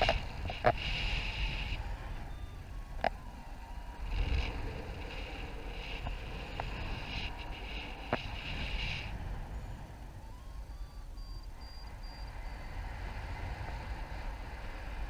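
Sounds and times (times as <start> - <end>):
wind rushing over microphone: 0.0 - 15.0
sharp ticks: 3.0 - 9.1.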